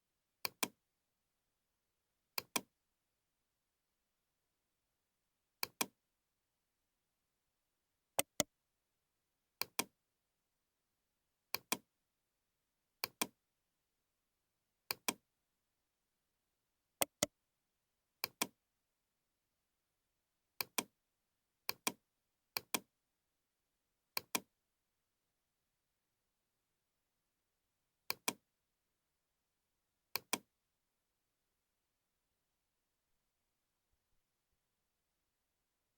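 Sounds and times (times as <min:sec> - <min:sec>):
computer mouse double-clicking: 0:17.0 - 0:17.3.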